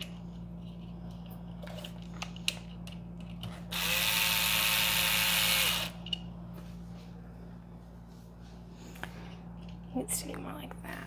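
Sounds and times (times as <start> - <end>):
electric screwdriver running: 3.7 - 6.0.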